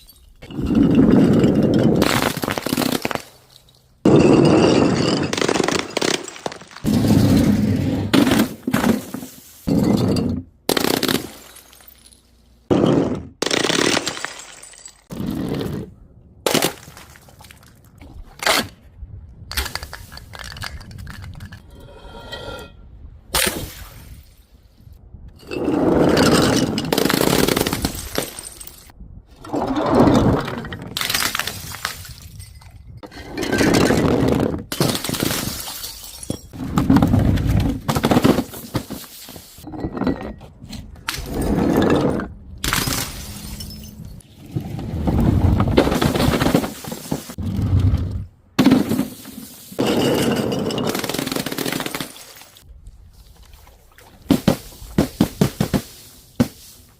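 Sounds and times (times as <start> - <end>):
glass bottles breaking: 0.0 - 7.5, 8.3 - 15.1, 34.7 - 36.6, 41.1 - 44.2.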